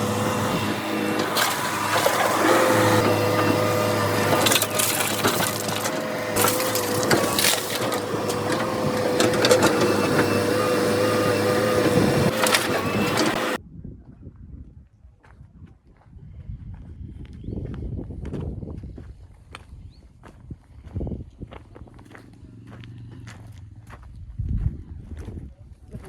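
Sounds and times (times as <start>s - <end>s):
crunching and knocking impacts: 0.0s - 13.6s
heavy machinery engine: 0.0s - 13.6s.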